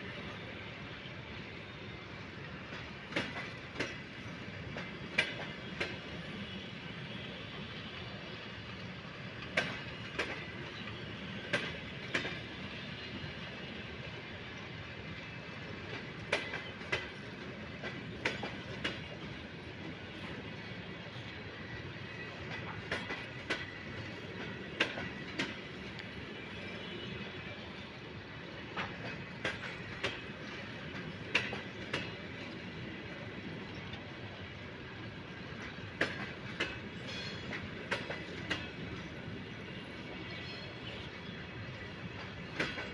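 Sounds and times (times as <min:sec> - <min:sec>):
railway cars rumbling: 0:00.0 - 0:42.9
train wheels clicking over rail joint: 0:02.7 - 0:06.1, 0:09.4 - 0:12.6, 0:15.8 - 0:19.3, 0:22.4 - 0:26.2, 0:28.6 - 0:32.6, 0:35.5 - 0:39.2, 0:41.8 - 0:42.9.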